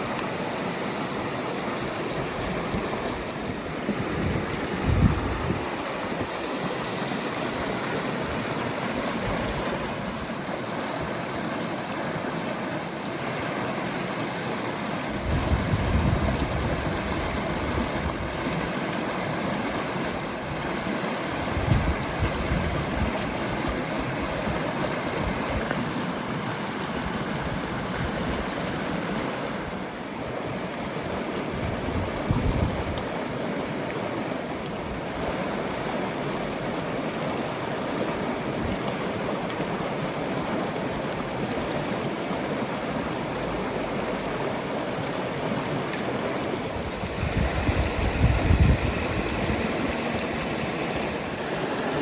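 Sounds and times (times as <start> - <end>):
river water rushing: 0.0 - 52.0
wind gusts on microphone: 2.1 - 10.3, 15.0 - 18.8, 20.0 - 25.8, 26.9 - 33.2, 46.1 - 52.0.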